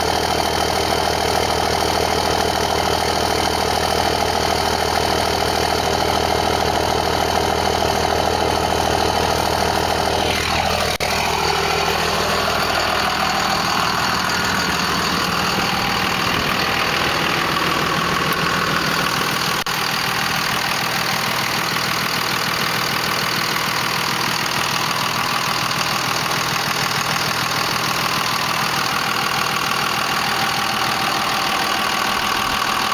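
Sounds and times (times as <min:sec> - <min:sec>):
diesel engine idling: 0:00.0 - 0:32.9
falling whine: 0:08.0 - 0:23.4.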